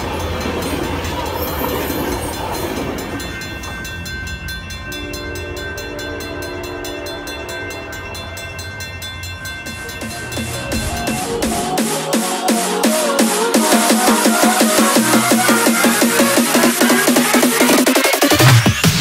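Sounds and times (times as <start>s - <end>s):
crossing bell ringing: 0.0s - 18.2s
train cars rumbling: 0.0s - 19.0s
distant train horn: 4.9s - 8.3s.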